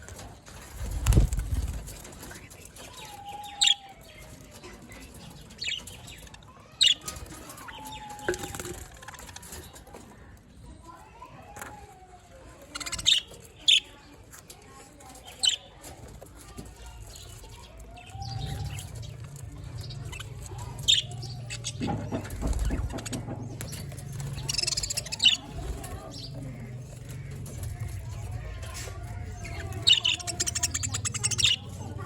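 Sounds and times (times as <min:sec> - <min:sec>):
wing flapping: 0:00.0 - 0:03.2, 0:18.4 - 0:32.0
rapid bird trill: 0:18.0 - 0:32.0
budgerigars chirping: 0:19.8 - 0:31.8.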